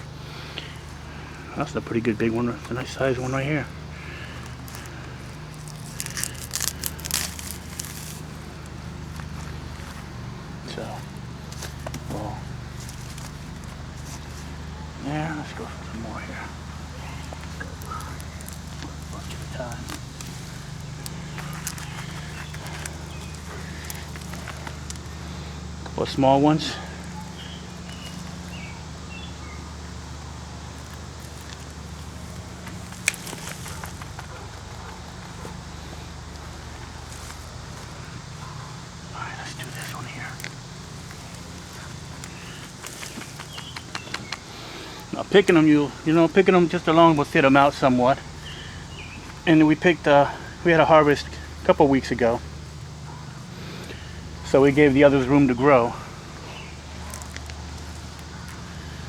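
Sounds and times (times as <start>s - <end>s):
steady low hum: 0.0s - 59.0s
carrots pulled from soil: 4.0s - 10.0s, 16.8s - 25.5s, 30.8s - 34.7s
faint bird chirps: 41.2s - 45.2s.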